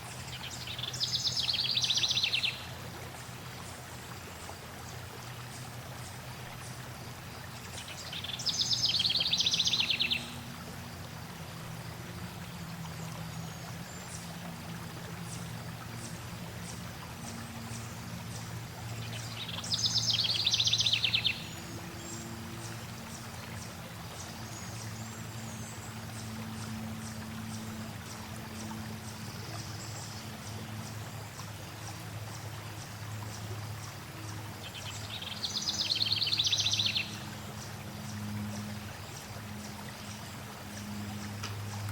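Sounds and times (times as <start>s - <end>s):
flowing water: 0.0s - 41.9s
songbird trilling: 7.9s - 10.4s, 19.1s - 22.2s.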